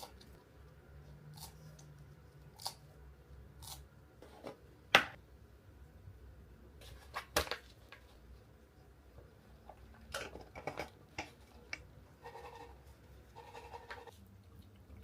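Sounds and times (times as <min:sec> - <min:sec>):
lizard crunching vegetables: 0:01.3 - 0:02.9.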